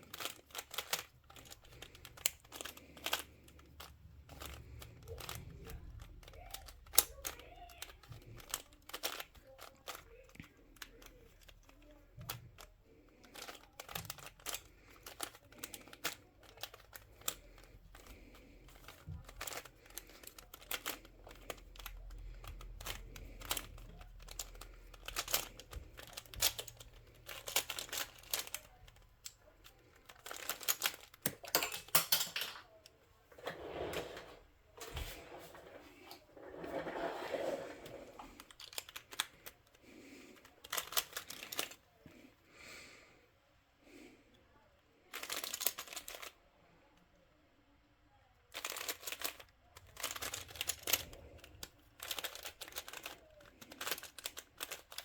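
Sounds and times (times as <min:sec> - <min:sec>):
puzzle cube clicking turns: 0:00.0 - 0:32.4, 0:38.0 - 0:41.9, 0:45.1 - 0:46.4, 0:48.5 - 0:55.0.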